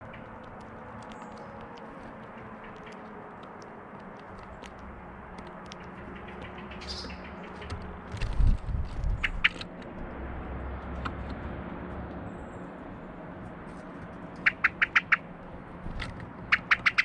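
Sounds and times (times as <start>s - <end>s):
short high bird calls: 14.4s - 15.3s.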